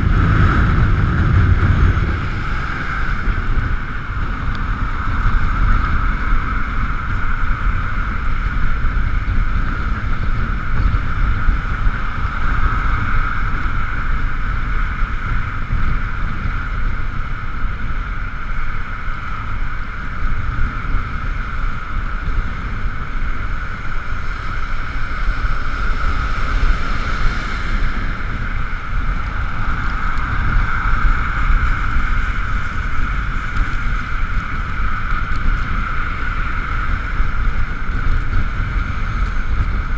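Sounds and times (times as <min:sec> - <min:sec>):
wind rumble on microphone: 0:00.0 - 0:39.9
tyres hissing on wet road: 0:11.2 - 0:39.9.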